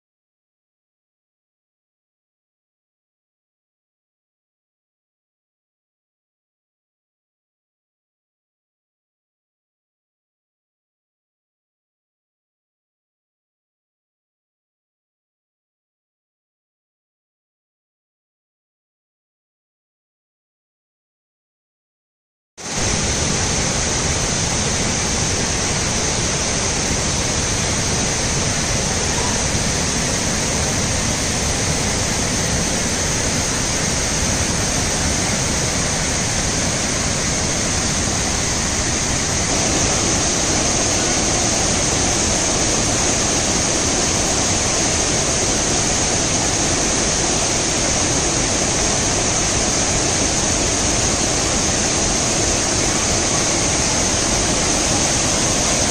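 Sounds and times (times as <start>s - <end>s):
waterfall rushing: 22.6s - 55.9s.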